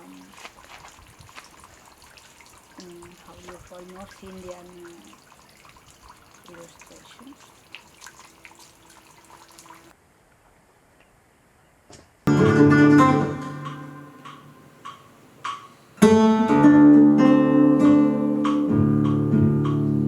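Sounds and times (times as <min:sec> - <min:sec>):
guitar strumming: 0:12.3 - 0:20.0
plucked guitar notes: 0:12.3 - 0:20.0.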